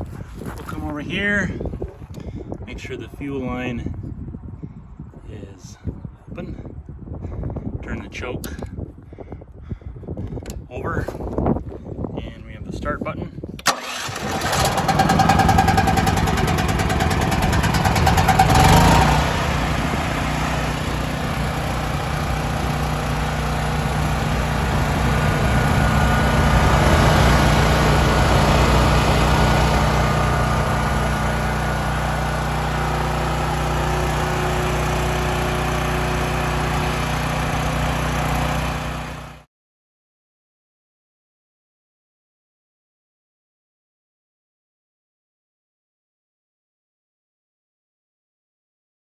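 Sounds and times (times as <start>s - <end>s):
generator engine running: 13.6s - 39.4s.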